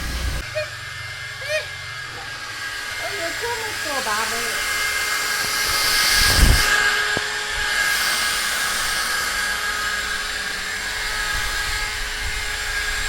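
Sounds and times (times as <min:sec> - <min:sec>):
high whining tones: 0:00.0 - 0:13.0
small motor whirring: 0:00.0 - 0:13.0.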